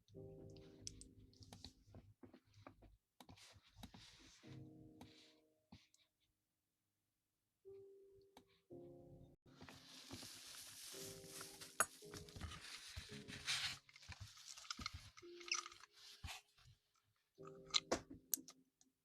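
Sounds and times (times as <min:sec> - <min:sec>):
rustling and crinkling: 0:09.5 - 0:17.0.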